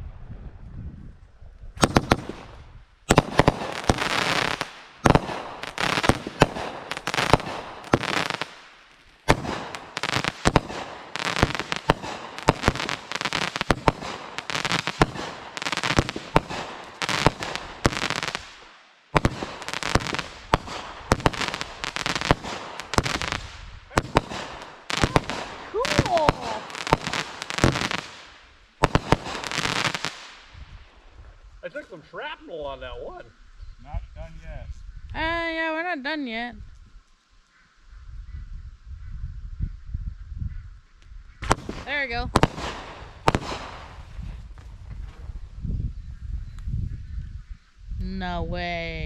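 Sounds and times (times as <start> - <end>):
fireworks bangs and crackle: 1.8 - 31.0, 41.4 - 45.6.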